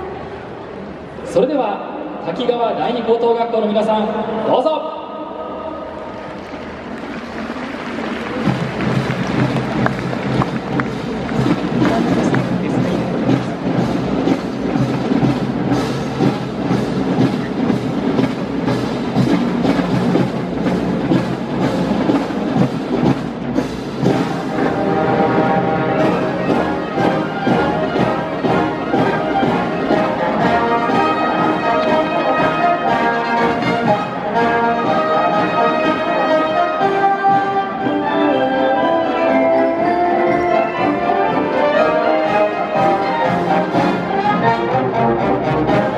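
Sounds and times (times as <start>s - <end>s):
driving percussion beat: 6.9s - 38.6s, 39.3s - 45.9s
sustained brass chords: 23.6s - 45.9s.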